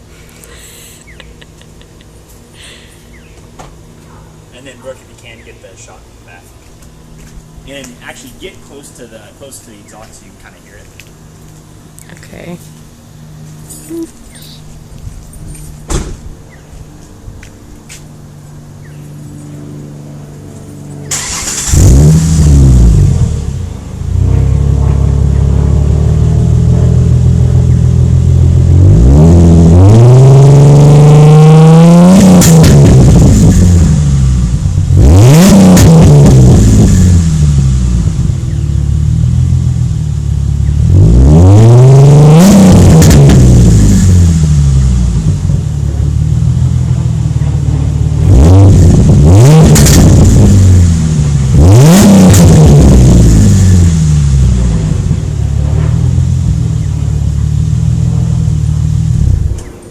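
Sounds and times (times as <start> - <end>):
car engine idling: 0.0 - 29.8, 32.6 - 35.4, 36.1 - 41.0, 42.8 - 59.9
car engine starting: 18.6 - 59.9
car engine revving: 20.1 - 59.8.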